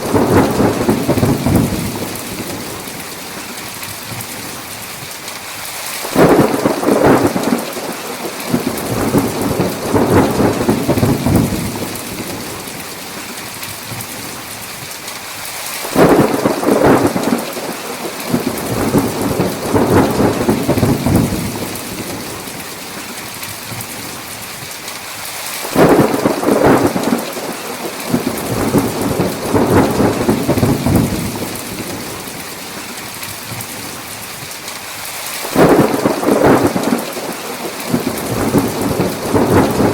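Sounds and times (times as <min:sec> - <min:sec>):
thunder rolling: 0:00.0 - 0:03.0, 0:06.0 - 0:12.8, 0:15.9 - 0:22.6, 0:25.6 - 0:32.4, 0:35.4 - 0:39.9
heavy rain: 0:00.0 - 0:39.9.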